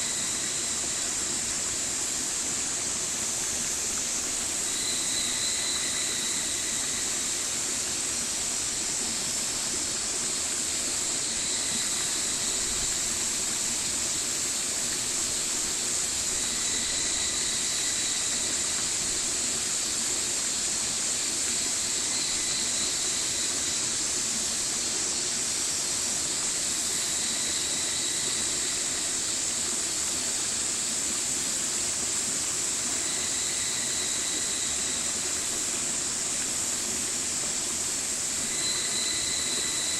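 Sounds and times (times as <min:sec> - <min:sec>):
stream rushing: 0:00.0 - 0:39.9
faint thin tone: 0:38.5 - 0:39.9.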